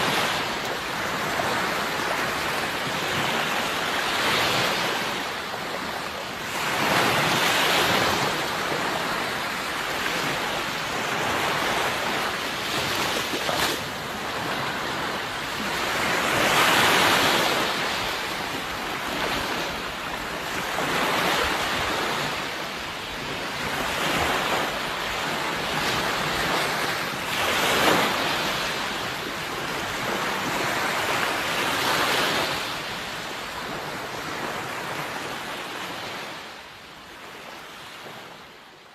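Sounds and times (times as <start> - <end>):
sea waves breaking on shore: 0.0 - 38.9.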